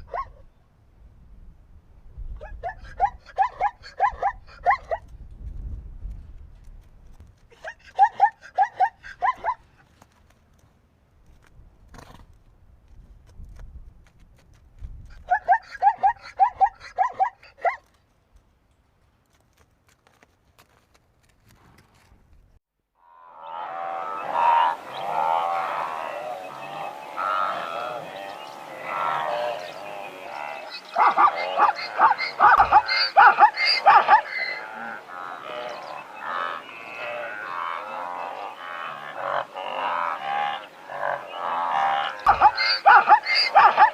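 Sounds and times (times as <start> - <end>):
zebra barking: 23.4 - 43.9.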